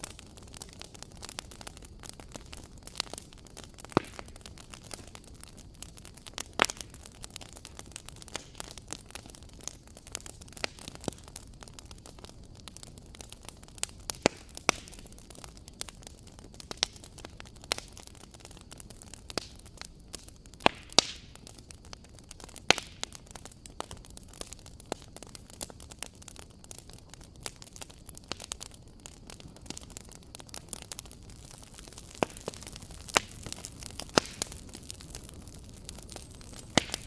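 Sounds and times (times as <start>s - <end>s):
fire crackling and popping: 0.0s - 37.0s
low rumble of fire: 0.0s - 37.0s.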